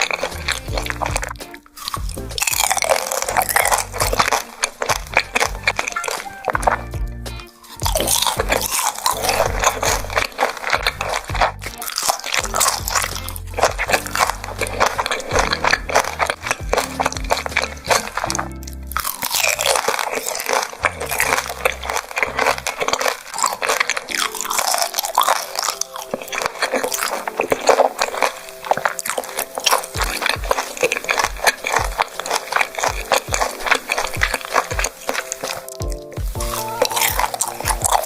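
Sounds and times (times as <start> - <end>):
background music with bass beat: 0.0 - 19.8, 32.9 - 38.0
close-up chewing: 0.0 - 38.0.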